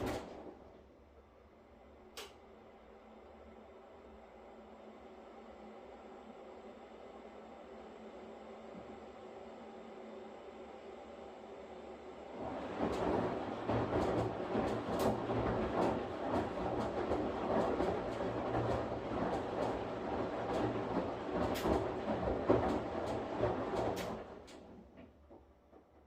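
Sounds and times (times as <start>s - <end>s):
washing machine drum churning: 0.0s - 0.9s, 12.3s - 26.0s
washing machine motor hum: 0.0s - 26.0s.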